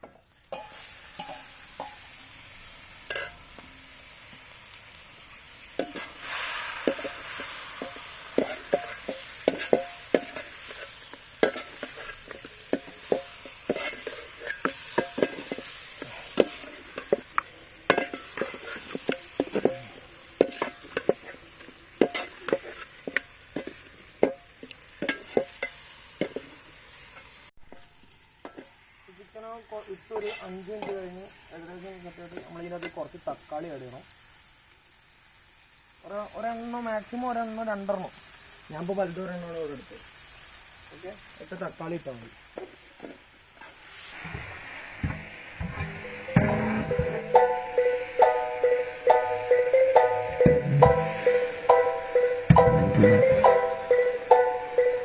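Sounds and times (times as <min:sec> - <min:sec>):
chicken sizzling in oil: 0:00.0 - 0:55.0
spatula scraping a pan: 0:00.2 - 0:02.0, 0:03.0 - 0:03.4, 0:05.8 - 0:26.6, 0:30.1 - 0:31.0.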